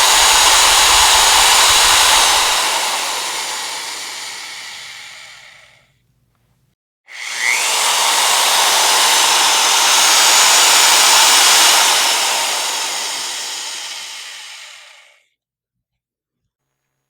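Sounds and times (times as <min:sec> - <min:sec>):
power drill whirring: 0:00.0 - 0:05.6, 0:07.1 - 0:15.1.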